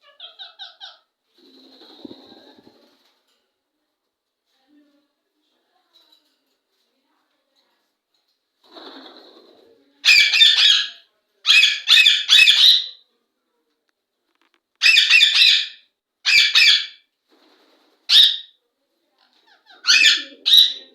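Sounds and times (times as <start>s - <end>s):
parrot squawking: 0.0s - 1.1s, 10.0s - 13.0s, 14.8s - 17.0s, 18.1s - 18.5s, 19.5s - 20.9s.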